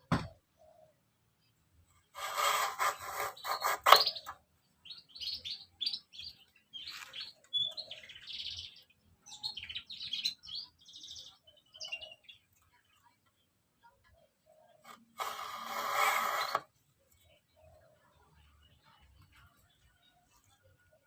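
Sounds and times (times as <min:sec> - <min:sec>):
small birds chirping: 0:00.1 - 0:21.0
loud rapid rasping: 0:02.2 - 0:04.3, 0:14.9 - 0:16.6.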